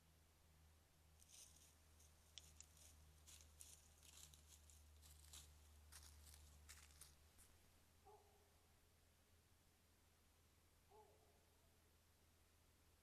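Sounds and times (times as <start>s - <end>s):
steady low hum: 0.0s - 10.9s
faint rustling crackles: 1.2s - 7.6s.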